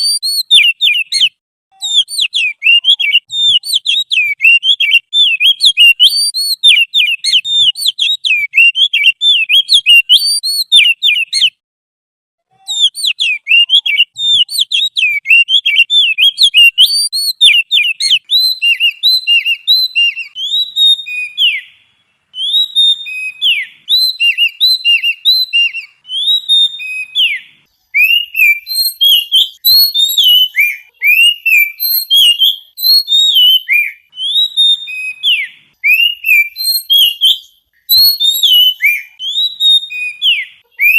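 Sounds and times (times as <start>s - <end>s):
songbird singing: 0.0s - 11.6s, 12.5s - 40.9s.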